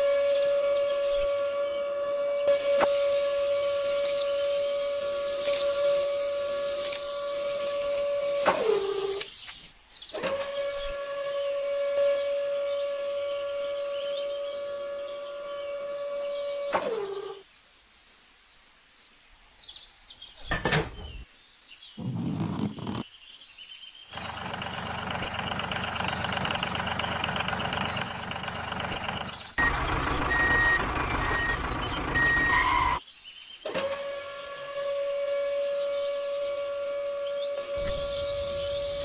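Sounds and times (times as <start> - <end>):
vehicle machine noise: 0.0 - 17.4, 24.2 - 33.0, 33.7 - 39.0
reversing alarm beeps: 29.6 - 33.0.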